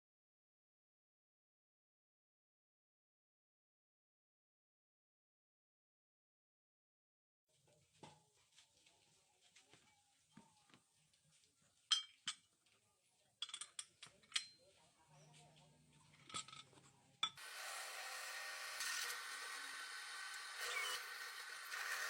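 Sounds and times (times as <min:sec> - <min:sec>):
tools clicking and tapping metal: 0:11.9 - 0:12.5, 0:13.4 - 0:14.6, 0:16.1 - 0:17.4
tool scraping metal: 0:17.2 - 0:22.0.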